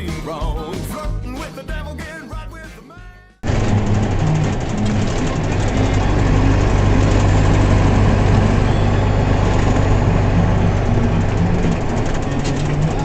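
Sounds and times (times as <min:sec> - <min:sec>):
truck engine humming: 0:03.4 - 0:13.0.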